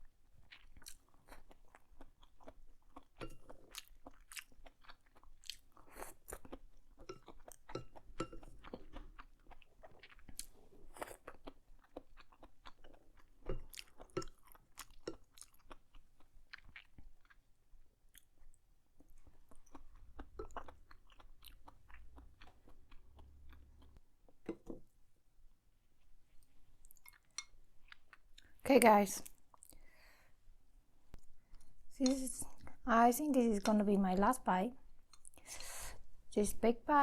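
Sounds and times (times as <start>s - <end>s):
close-up chewing: 0.3s - 24.0s, 26.0s - 28.6s.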